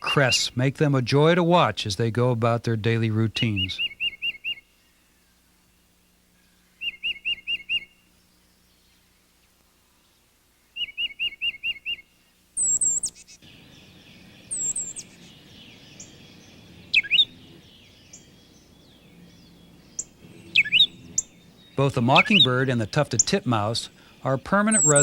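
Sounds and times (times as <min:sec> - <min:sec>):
faint steady hiss: 0:00.0 - 0:25.0
sharp sweeping bird calls: 0:03.4 - 0:09.2, 0:10.0 - 0:25.0
titmouse whistled song: 0:03.6 - 0:04.6, 0:06.8 - 0:08.0, 0:10.8 - 0:12.0, 0:12.6 - 0:13.2, 0:14.5 - 0:15.1, 0:16.9 - 0:17.3, 0:20.0 - 0:23.4, 0:24.7 - 0:25.0.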